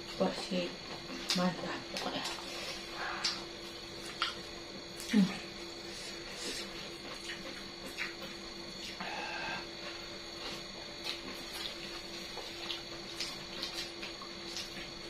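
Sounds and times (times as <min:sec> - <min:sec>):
steady low hum: 0:00.0 - 0:15.0
wet chewing clicks: 0:03.1 - 0:05.1, 0:06.6 - 0:09.0, 0:09.8 - 0:15.0
lip smacks: 0:03.2 - 0:04.4.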